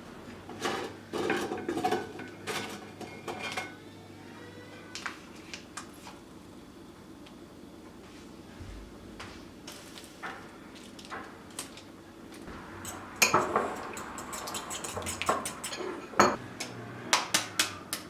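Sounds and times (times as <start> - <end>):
utensils and dishes clinking: 0.5 - 3.8, 12.5 - 16.4.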